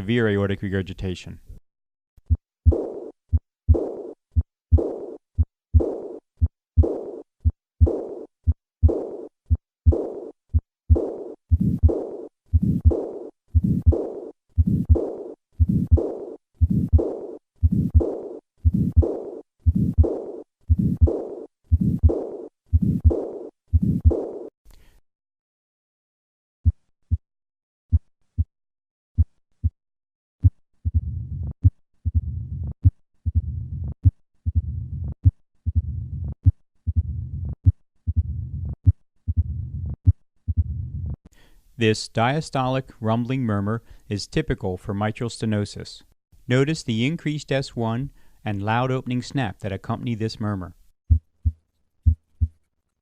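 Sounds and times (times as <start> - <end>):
heartbeat with blowing murmur: 2.3 - 24.3, 30.4 - 41.2, 51.1 - 52.6.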